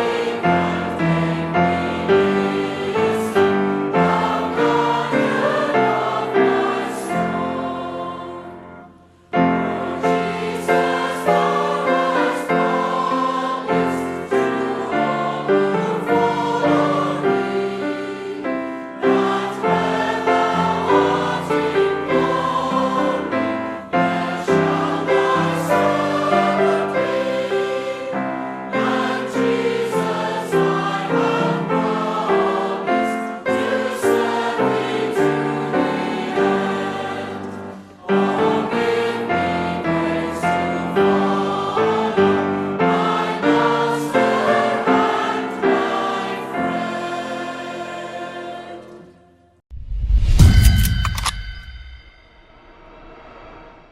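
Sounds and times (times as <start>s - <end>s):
choir singing church music: 0.0s - 53.9s.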